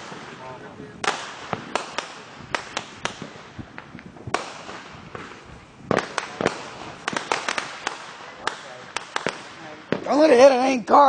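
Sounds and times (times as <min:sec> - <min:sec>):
firecrackers banging: 0:00.0 - 0:11.0.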